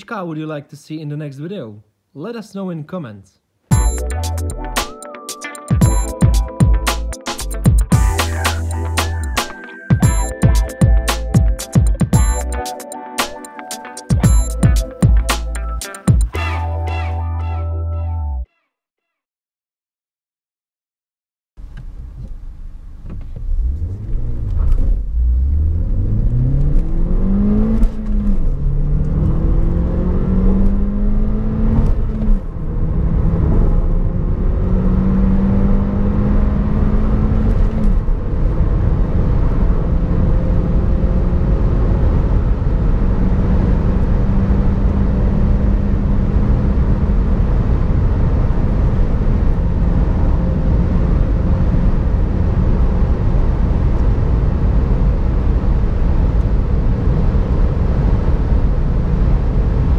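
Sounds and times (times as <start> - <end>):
wind and tyre noise: 21.6 - 59.9
car engine accelerating: 23.0 - 59.9.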